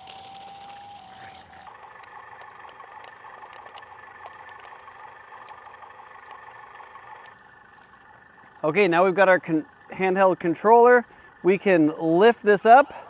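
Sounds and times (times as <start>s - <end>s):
electric motors whining: 0.0s - 8.6s.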